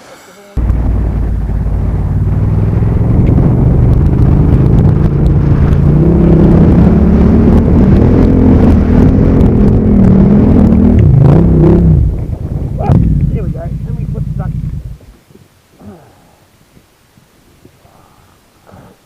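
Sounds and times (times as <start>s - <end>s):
motorcycle engine running: 0.6s - 15.1s
wind rumble: 0.6s - 18.4s.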